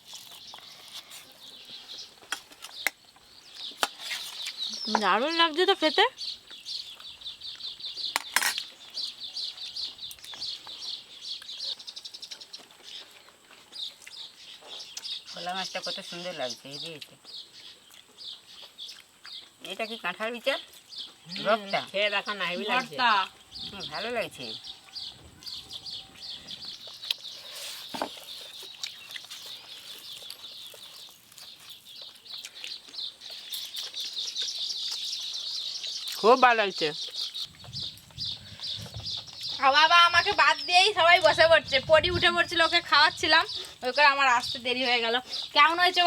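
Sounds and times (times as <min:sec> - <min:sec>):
small bird chirping: 0:00.1 - 0:46.0.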